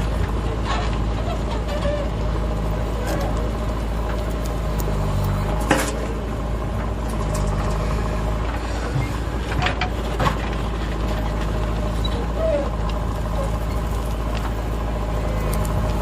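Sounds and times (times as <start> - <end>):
heavy vehicle engine running: 0.0 - 16.0.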